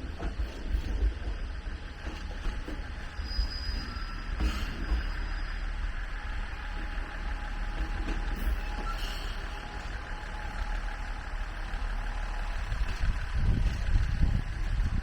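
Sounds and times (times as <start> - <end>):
vehicle rumble: 4.4 - 15.0.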